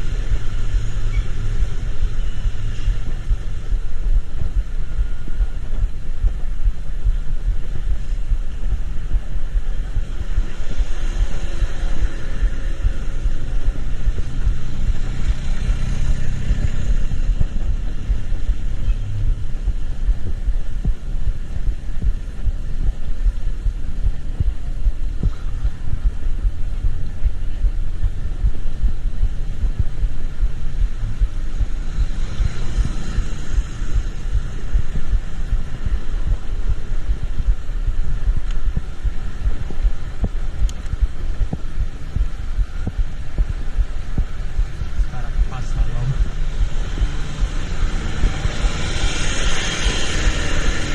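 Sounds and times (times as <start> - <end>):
vehicle low rumble: 0.0 - 50.9
wind buffeting microphone: 0.0 - 50.9
hiss of passing vehicles: 9.8 - 19.3, 30.9 - 36.2, 44.3 - 50.9.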